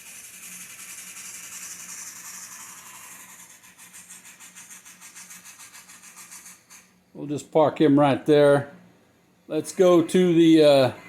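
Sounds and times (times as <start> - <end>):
model train wheels hissing on rail: 0.0 - 7.0
faint motor hum: 0.0 - 11.0.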